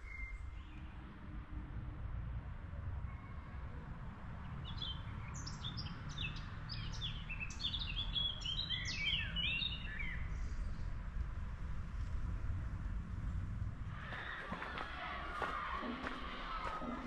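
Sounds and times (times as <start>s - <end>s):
songbird singing: 0.0s - 1.2s, 4.5s - 11.2s.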